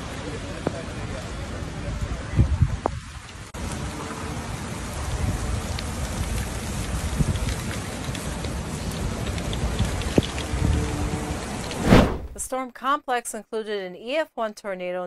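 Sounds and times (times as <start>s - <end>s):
heavy rain on pavement and cars: 0.0s - 11.8s.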